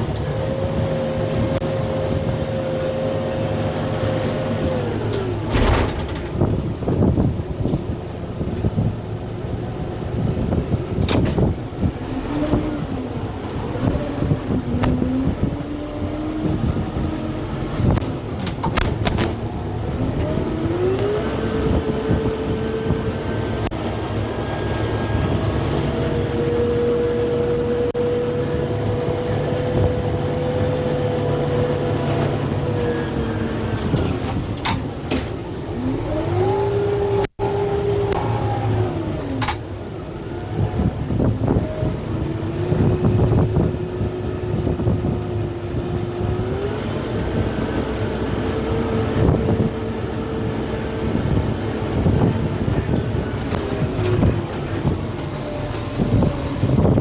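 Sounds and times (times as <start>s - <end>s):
sharp cracks and knocks: 5.2s - 6.8s, 18.4s - 19.4s
tractor diesel engine revving: 19.4s - 57.0s.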